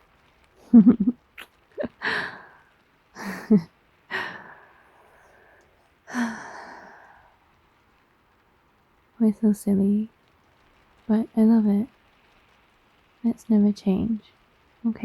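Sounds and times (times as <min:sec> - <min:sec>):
woman giggling softly: 0:00.6 - 0:02.5, 0:03.2 - 0:04.7.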